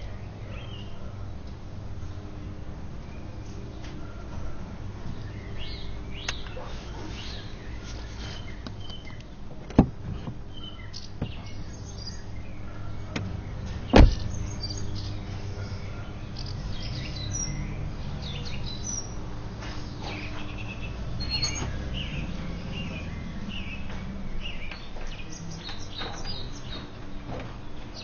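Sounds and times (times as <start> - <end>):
small birds chirping: 0.0 - 28.0
sharp knocks: 13.9 - 14.3.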